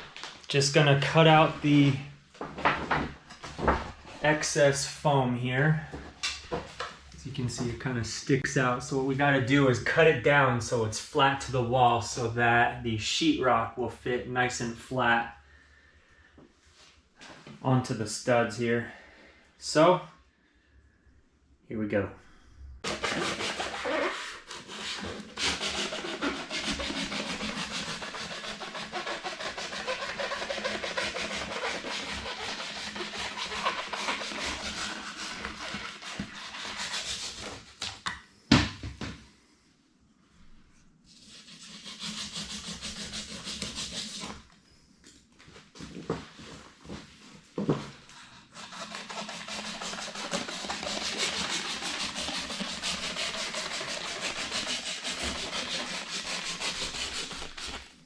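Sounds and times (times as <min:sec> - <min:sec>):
blade cutting foam: 0:22.8 - 0:37.5, 0:48.5 - 0:58.0.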